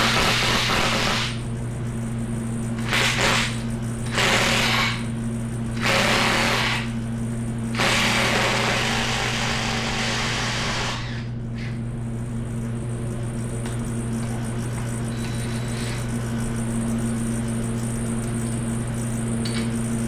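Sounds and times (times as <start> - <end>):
power tool bursts: 0.0 - 1.4, 2.8 - 5.2, 5.8 - 7.0, 7.7 - 11.3
steady low hum: 0.0 - 20.0.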